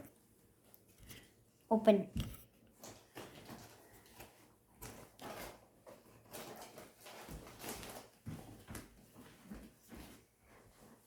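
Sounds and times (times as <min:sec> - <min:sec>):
cardboard rustling and scraping: 0:02.8 - 0:11.0.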